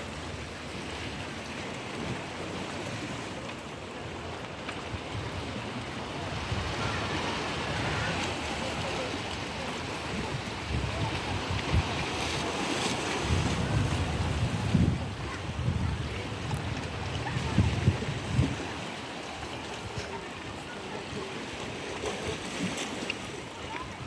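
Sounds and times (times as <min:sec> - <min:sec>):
sea waves washing: 0:00.0 - 0:24.0
wind buffeting microphone: 0:06.2 - 0:18.9.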